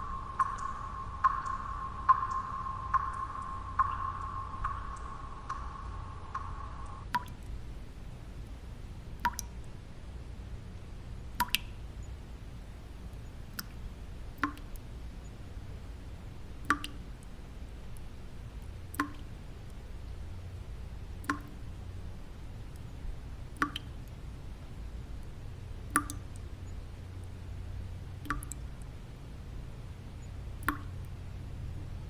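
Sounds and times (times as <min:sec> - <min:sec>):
high hum with ticks: 0:00.0 - 0:32.0
low steady background noise: 0:00.0 - 0:32.0
water dripping: 0:00.0 - 0:32.0.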